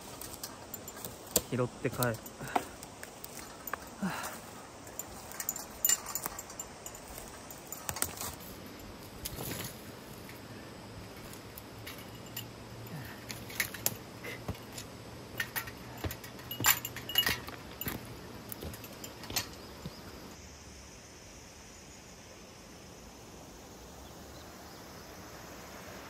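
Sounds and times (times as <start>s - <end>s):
metal items jangling: 0.0s - 9.8s, 11.1s - 20.0s.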